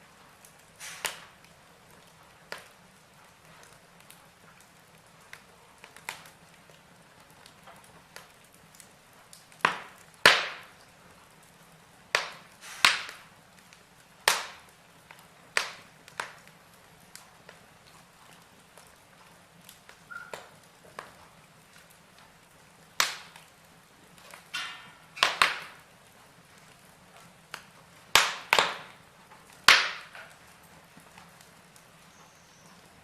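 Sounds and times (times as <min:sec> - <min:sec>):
logs crackling in fireplace: 0:00.0 - 0:33.0.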